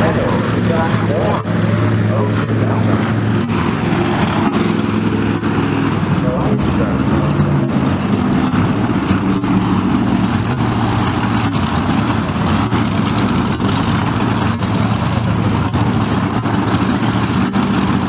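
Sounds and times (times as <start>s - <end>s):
heavy vehicle engine idling: 0.0s - 18.0s.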